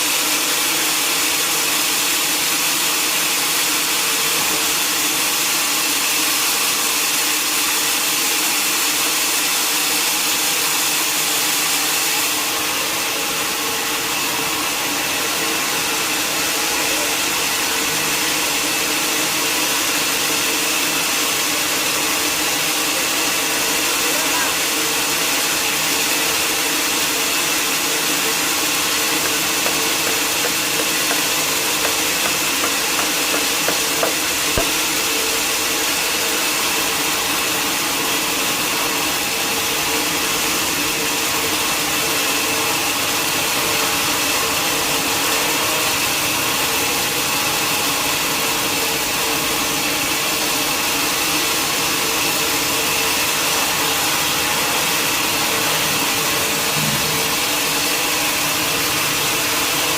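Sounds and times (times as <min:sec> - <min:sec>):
saw whining through log: 0:25.0 - 0:37.1.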